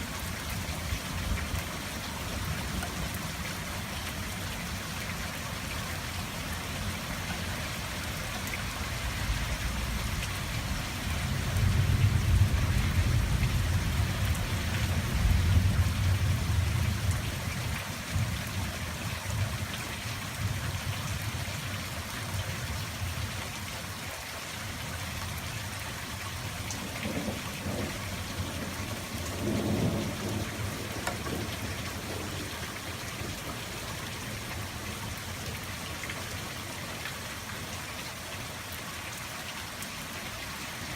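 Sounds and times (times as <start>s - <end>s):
steady rain falling: 0.0s - 40.9s
rolling thunder: 26.8s - 33.4s.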